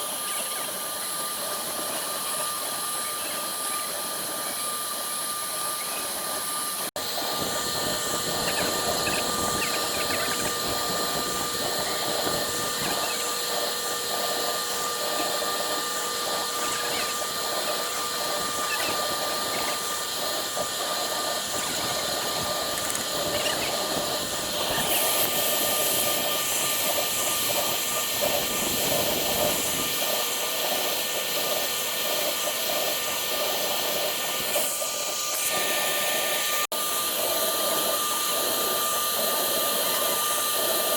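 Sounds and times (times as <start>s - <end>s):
router spindle whine: 0.0s - 40.9s.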